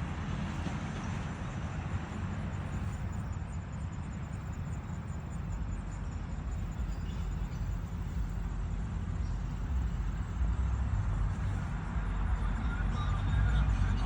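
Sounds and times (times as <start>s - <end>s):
low rumble: 6.6s - 14.0s.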